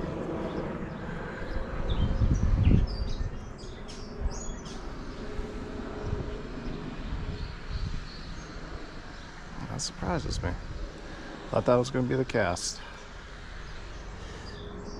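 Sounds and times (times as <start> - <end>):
low rumble: 0.0 - 8.8
birds chirping: 0.0 - 14.9.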